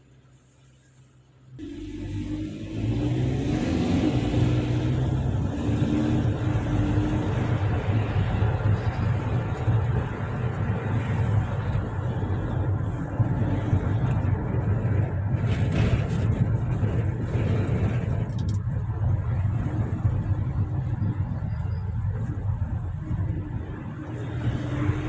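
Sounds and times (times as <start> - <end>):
road traffic rumble: 0.0 - 25.0
vehicle passing: 1.6 - 18.1, 22.2 - 25.0.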